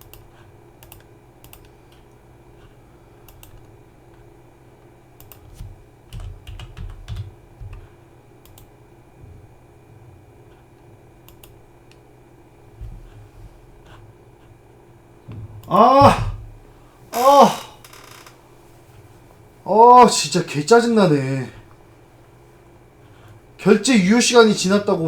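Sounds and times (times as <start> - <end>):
keyboard keystrokes: 0.0 - 2.0, 5.2 - 7.8
faint steady hum: 0.0 - 25.0
low thumps: 15.3 - 16.7.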